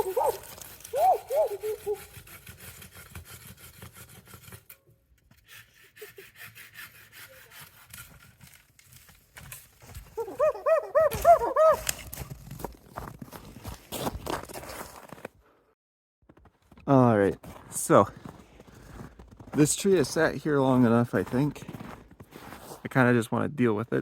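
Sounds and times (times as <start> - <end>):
dog whimpering: 0.0 - 2.1, 10.2 - 11.9.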